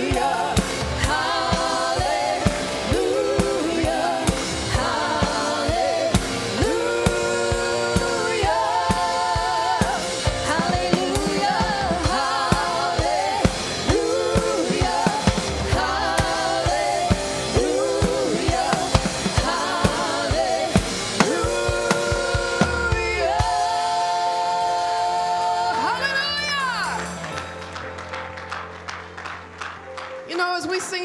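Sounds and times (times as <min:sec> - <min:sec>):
singers with vibrato: 0:00.0 - 0:27.3
drum kit beat: 0:00.0 - 0:27.6
band playing worship music: 0:00.0 - 0:31.0.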